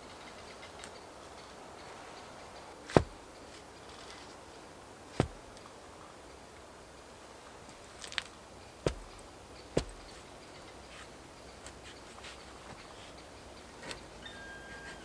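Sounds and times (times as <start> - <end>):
faint steady hiss: 0.0 - 15.0
sharp knocks: 2.9 - 3.2, 8.8 - 9.2, 9.8 - 10.2.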